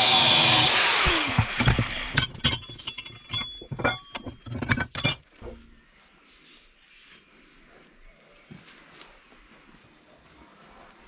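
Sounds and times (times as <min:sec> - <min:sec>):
light metallic clinks and knocks: 0:01.6 - 0:05.8.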